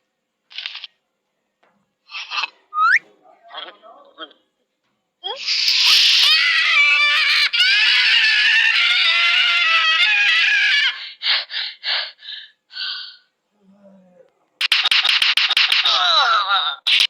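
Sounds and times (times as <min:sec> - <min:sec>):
person screaming: 0:05.8 - 0:11.2.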